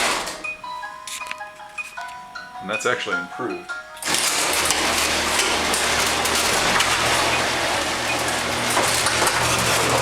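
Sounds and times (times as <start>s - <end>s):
motor hum: 4.0s - 10.0s.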